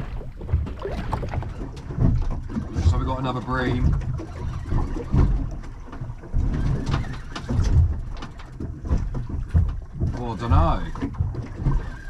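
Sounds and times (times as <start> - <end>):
low buffeting and rumbling: 0.0 - 12.0
knocks and clicks of tackle: 3.7 - 12.0.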